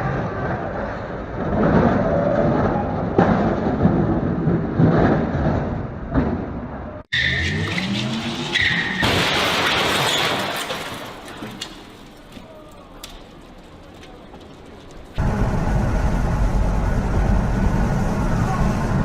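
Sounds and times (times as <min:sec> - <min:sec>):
skidding noise: 0:00.0 - 0:19.0
tyre squeals: 0:07.1 - 0:09.0
rumbling noise: 0:10.8 - 0:19.0.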